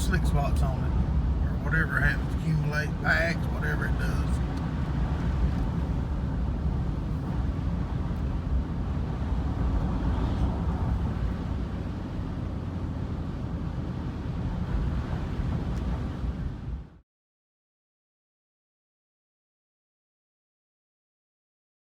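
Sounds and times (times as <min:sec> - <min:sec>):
road noise: 0:00.0 - 0:17.0
vehicle engine rumble: 0:00.0 - 0:17.0.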